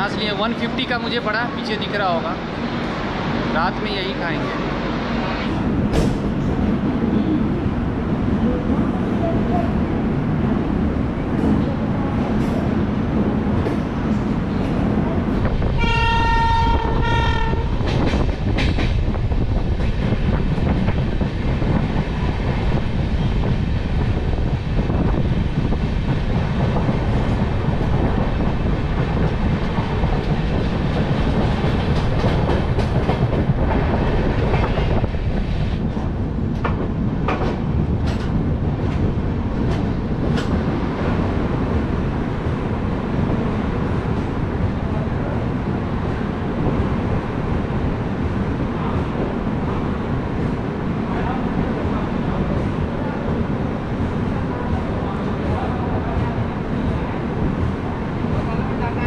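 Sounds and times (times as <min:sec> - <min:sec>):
train wheels clickety-clack on rails: 0:05.5 - 0:59.0
train horn: 0:15.8 - 0:17.7.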